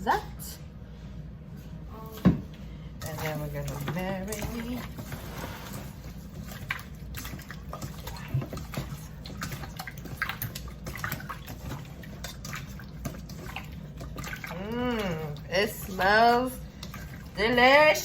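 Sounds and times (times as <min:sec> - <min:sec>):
hands mixing raw chicken: 0:02.2 - 0:18.0.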